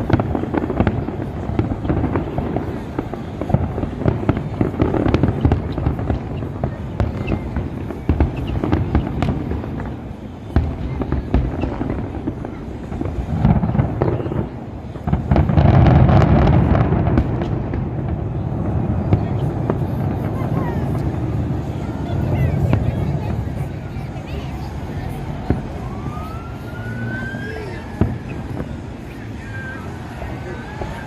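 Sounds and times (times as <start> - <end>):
fireworks bangs and crackling: 0.0 - 31.0.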